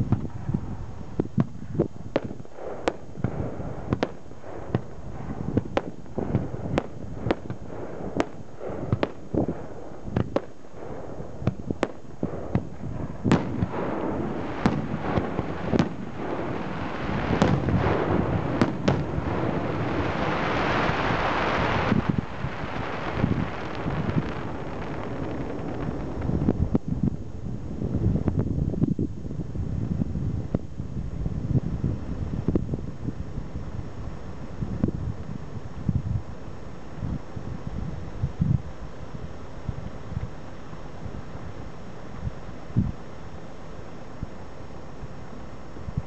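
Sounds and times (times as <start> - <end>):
fireworks banging and popping: 0.0 - 0.6, 1.2 - 27.1
rushing hissing noise: 13.2 - 27.7.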